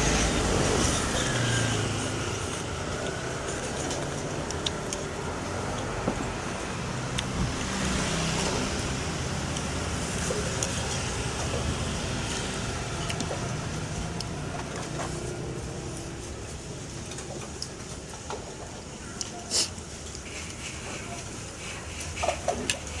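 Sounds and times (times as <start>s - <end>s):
vehicle engine running: 0.0s - 16.9s
road traffic noise: 0.0s - 23.0s.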